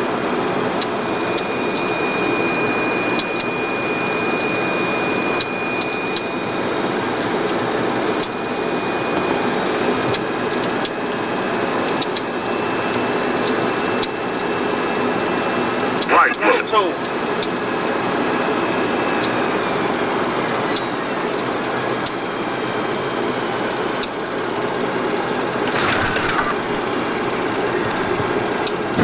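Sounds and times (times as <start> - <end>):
thin high whine: 16.0 - 17.1.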